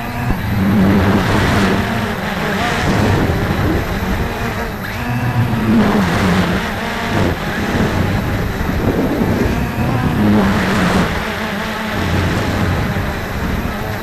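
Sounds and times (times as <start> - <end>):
quadcopter motors whining: 0.0 - 14.0
wind buffeting microphone: 0.0 - 14.0.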